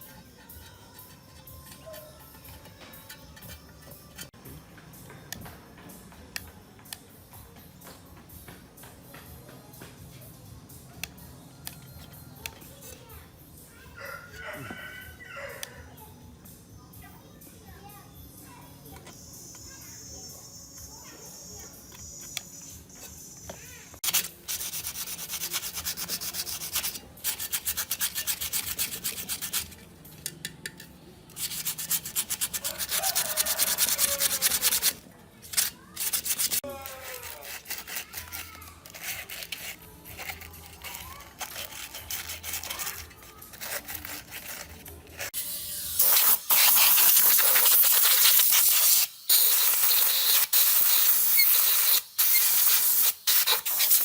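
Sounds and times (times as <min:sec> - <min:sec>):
hissing scrape: 0:31.4 - 0:54.0.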